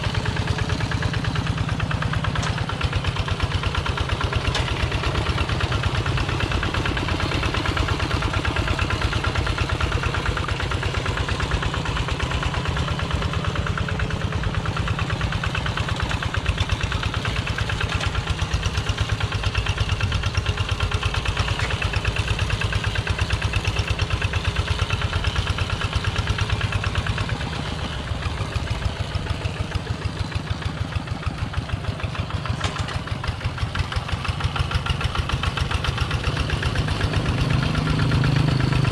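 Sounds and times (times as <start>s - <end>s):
diesel tractor engine chugging: 0.0s - 38.9s.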